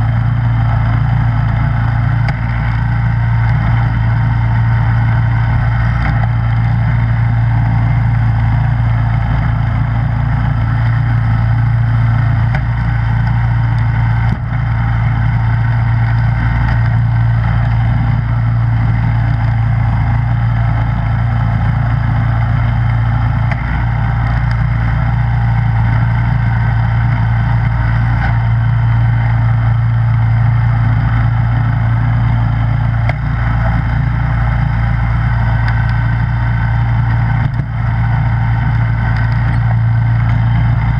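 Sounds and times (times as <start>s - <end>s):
snowblower engine running: 0.0s - 40.9s.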